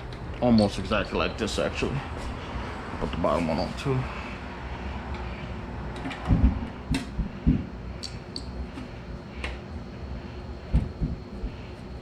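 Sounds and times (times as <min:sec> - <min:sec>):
dull thumps and knocks: 0:06.2 - 0:07.7, 0:10.7 - 0:11.3.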